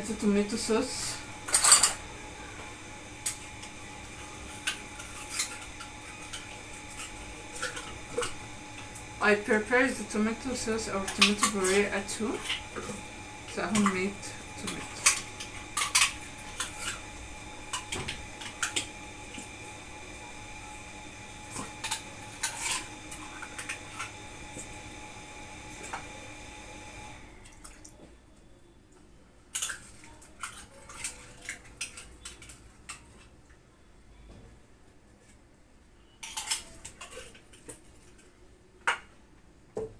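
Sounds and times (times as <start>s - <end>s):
steady background hum: 0.0s - 39.9s
utensils clinking on dishes: 1.4s - 2.1s, 3.2s - 18.9s, 36.2s - 38.4s.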